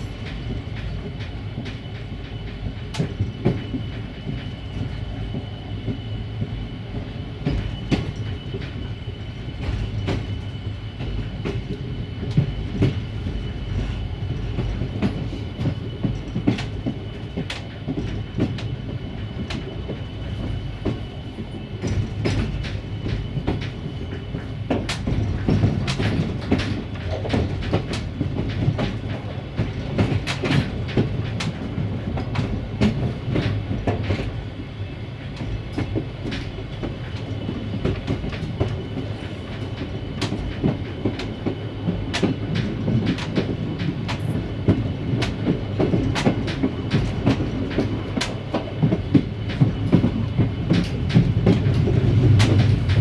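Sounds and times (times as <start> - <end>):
train wheels clacking over joints: 0.0 - 53.0.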